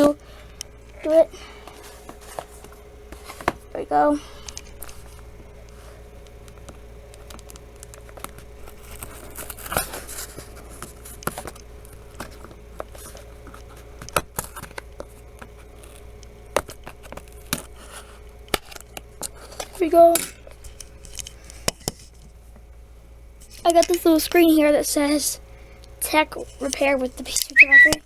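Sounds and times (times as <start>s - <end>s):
packaging tearing and crinkling: 8.6s - 10.4s.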